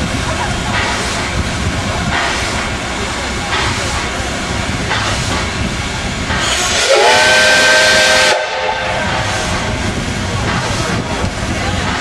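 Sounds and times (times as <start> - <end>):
steady low rumbling: 0.0 - 12.0
steam hissing: 0.0 - 12.0
steam locomotive whistle: 6.6 - 9.6.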